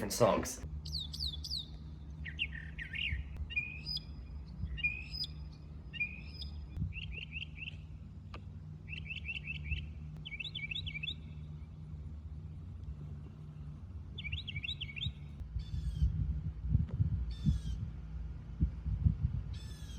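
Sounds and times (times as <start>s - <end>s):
mockingbird singing: 0.0s - 7.9s, 8.9s - 11.4s, 14.1s - 16.1s
low hum: 0.0s - 19.9s.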